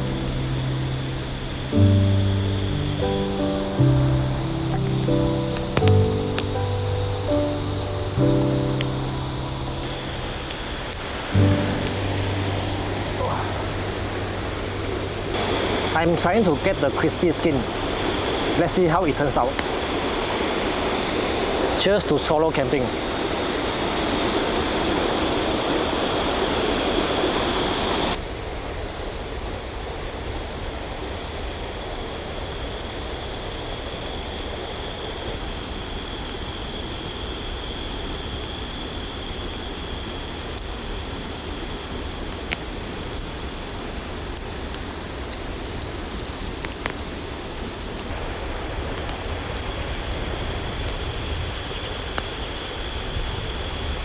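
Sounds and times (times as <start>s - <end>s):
high-pitched insect drone: 0.0s - 21.6s
river rushing: 0.0s - 28.6s.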